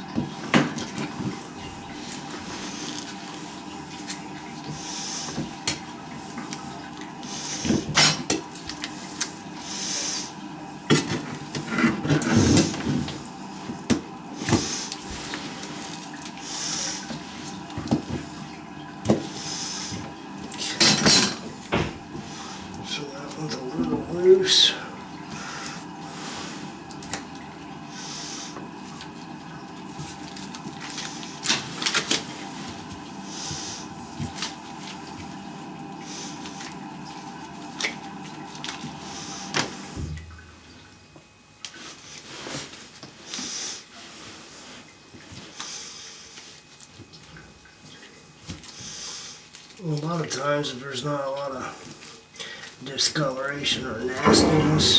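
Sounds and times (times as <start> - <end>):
steady hum: 0.0 - 41.2, 52.9 - 54.9.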